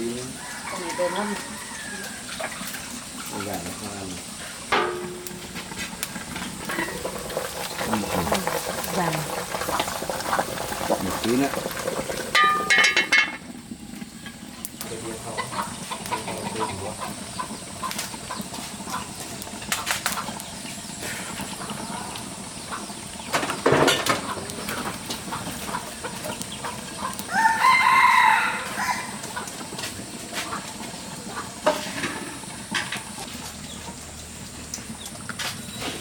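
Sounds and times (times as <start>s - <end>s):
rooster crowing: 0.0s - 2.6s, 27.1s - 29.5s.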